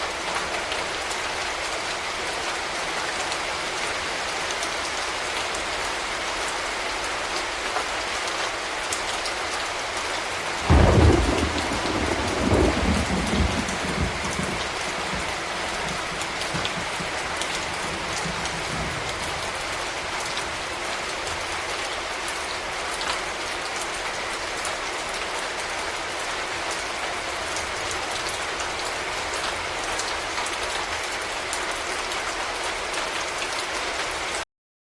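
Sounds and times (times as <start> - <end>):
steady rain falling: 0.0 - 34.4
thunder clap and rumble: 10.6 - 20.2.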